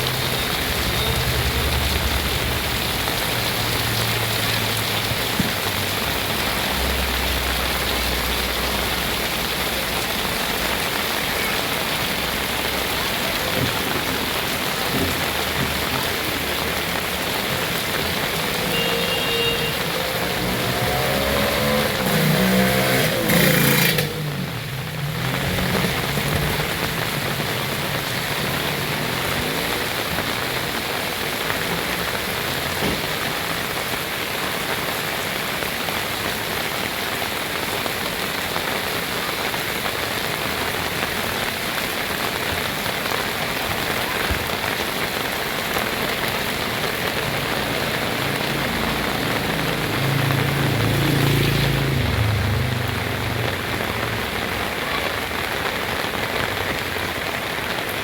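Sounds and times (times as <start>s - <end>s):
vehicle passing: 0.0s - 9.7s, 19.8s - 30.6s, 45.8s - 55.5s
heavy rain pouring: 0.0s - 58.0s.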